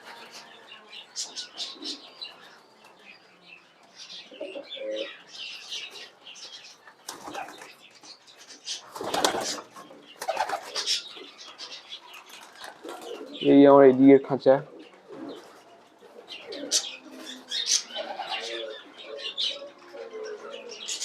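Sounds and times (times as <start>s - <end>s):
pigeons cooing: 0.0s - 2.6s, 4.0s - 7.8s, 8.5s - 13.8s, 14.6s - 21.0s
wings flapping: 7.0s - 7.8s, 8.9s - 11.0s
high bird chirping: 14.7s - 21.0s.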